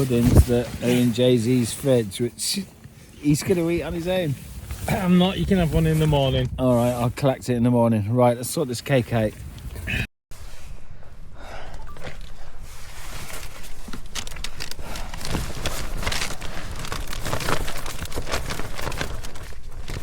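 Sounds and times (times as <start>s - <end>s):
wind rumble on microphone: 3.7s - 7.3s
plastic packaging crinkling and tearing: 12.9s - 20.0s.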